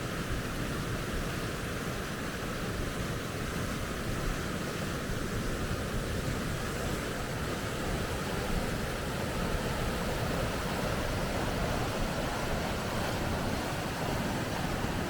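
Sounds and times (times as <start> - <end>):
water rushing over rapids: 0.0 - 15.0.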